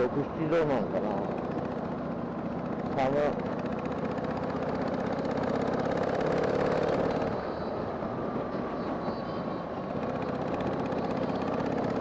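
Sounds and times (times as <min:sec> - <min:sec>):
wind and road noise: 0:00.0 - 0:12.0
motorcycle engine running: 0:00.6 - 0:07.6, 0:09.9 - 0:12.0.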